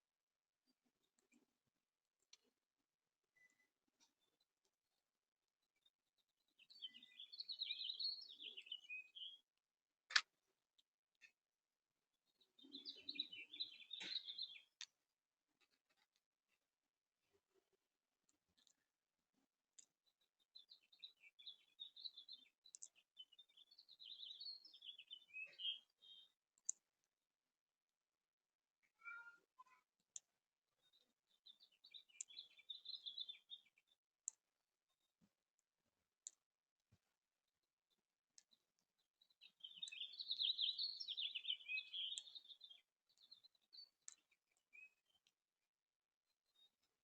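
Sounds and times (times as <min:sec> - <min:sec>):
songbird singing: 0:03.3 - 0:04.4, 0:05.7 - 0:09.6, 0:12.2 - 0:15.0, 0:19.7 - 0:26.8, 0:28.8 - 0:35.0, 0:38.4 - 0:45.4
short bird chirps: 0:06.5 - 0:09.4, 0:12.3 - 0:14.8, 0:20.2 - 0:26.4, 0:28.8 - 0:29.9, 0:39.2 - 0:45.3.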